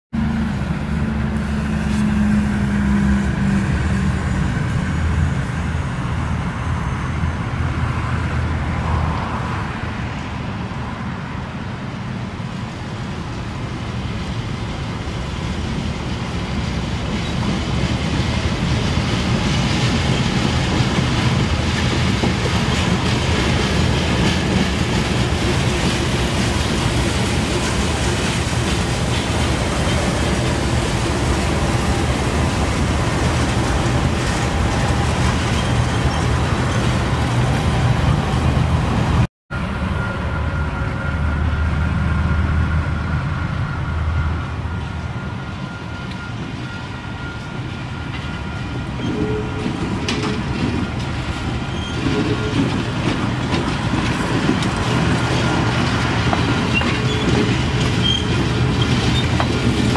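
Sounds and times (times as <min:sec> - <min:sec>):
train rumble passing: 0:00.1 - 0:59.9
low locomotive engine note: 0:00.2 - 0:59.9.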